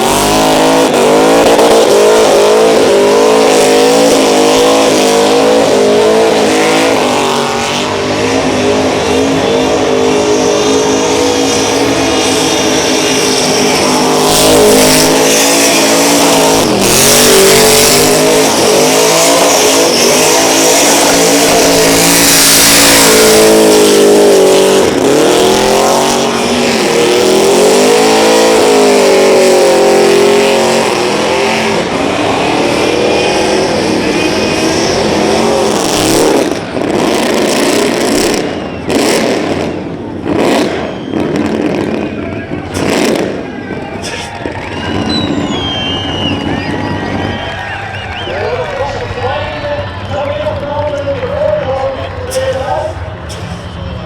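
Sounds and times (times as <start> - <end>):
car engine revving: 0.0 - 54.0
spinning tyres hissing: 44.0 - 48.5.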